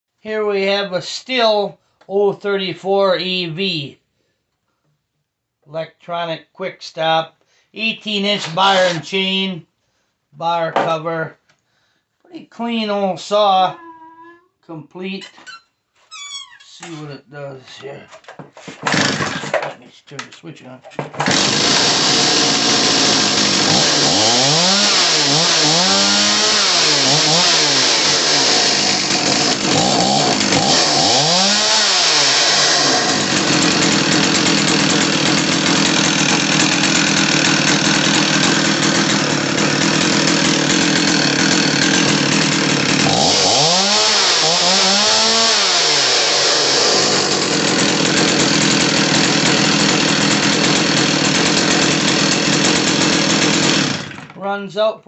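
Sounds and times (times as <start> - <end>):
chainsaw idling and revving: 18.8 - 19.6, 21.2 - 54.4.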